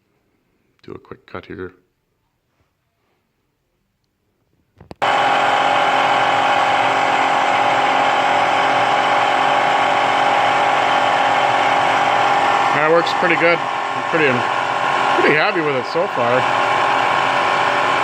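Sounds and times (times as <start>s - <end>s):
lathe cutting metal whine: 5.0s - 18.0s.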